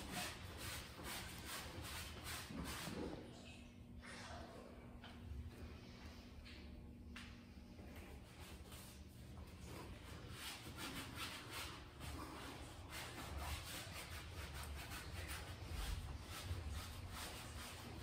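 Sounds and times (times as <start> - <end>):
rubbing and rustling: 8.1 - 18.0.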